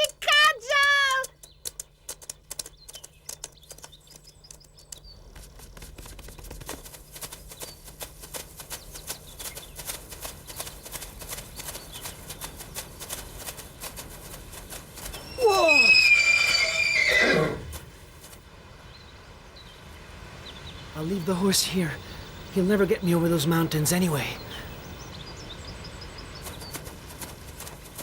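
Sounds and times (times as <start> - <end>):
horse hooves clip-clopping: 0.0 - 18.5, 24.9 - 28.0
horse whinnying: 15.3 - 17.8.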